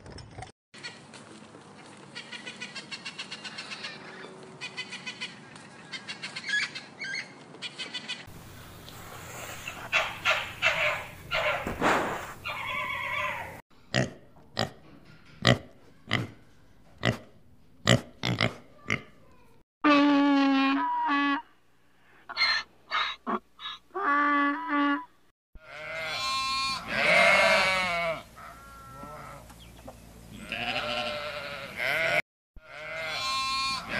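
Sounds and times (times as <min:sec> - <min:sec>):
fox high calls: 0:12.4 - 0:13.6.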